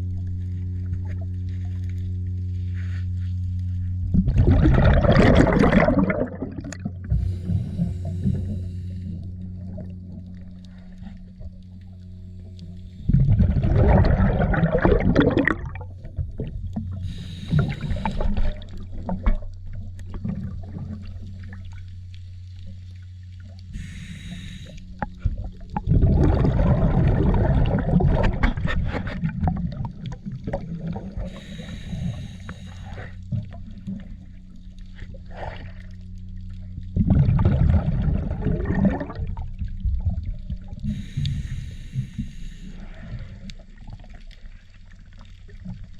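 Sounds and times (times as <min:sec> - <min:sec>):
boat engine humming: 0:00.0 - 0:28.9, 0:29.5 - 0:37.0.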